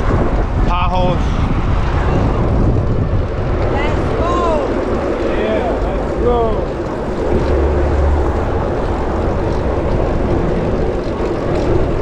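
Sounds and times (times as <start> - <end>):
airplane drone overhead: 0.0 - 12.0
wind noise on microphone: 0.0 - 12.0.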